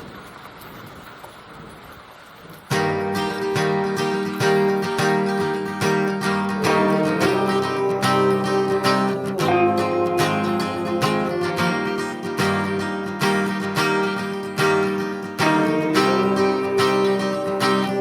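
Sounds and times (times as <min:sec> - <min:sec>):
acoustic guitar strumming: 0:02.7 - 0:18.0.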